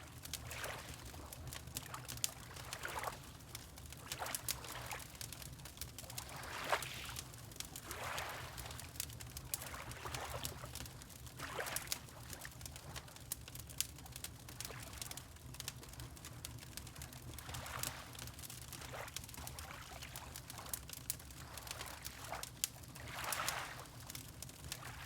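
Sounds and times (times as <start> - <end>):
wood fire crackling: 0.0 - 6.5, 8.5 - 23.0, 23.7 - 25.0
water lapping: 7.9 - 8.7, 23.0 - 23.9.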